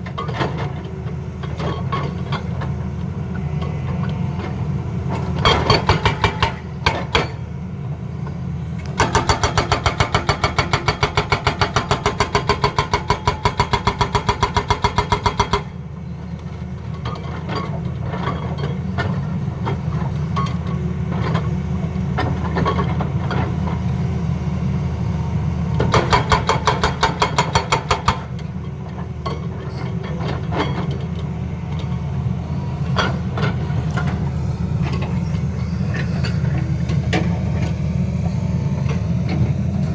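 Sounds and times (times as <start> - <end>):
excavator diesel engine running: 0.0 - 39.9
hydraulic breaker hammering: 5.5 - 7.4, 25.8 - 28.3.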